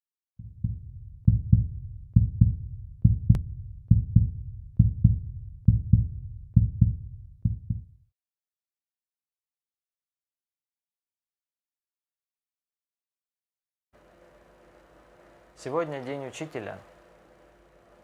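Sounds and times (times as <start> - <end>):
heartbeat thumps: 0.4 - 8.0.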